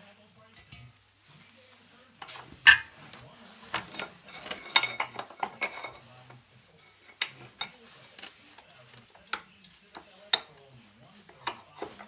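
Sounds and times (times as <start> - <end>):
metal tools clanking: 2.2 - 3.0, 3.7 - 12.0.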